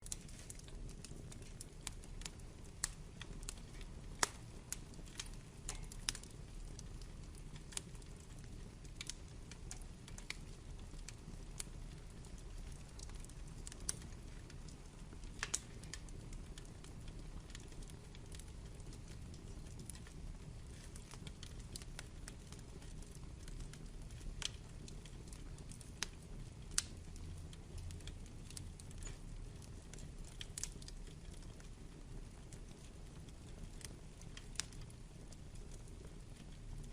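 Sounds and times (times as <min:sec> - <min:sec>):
low rumble of flames: 0:00.0 - 0:36.9
wood fire crackling: 0:00.0 - 0:36.9.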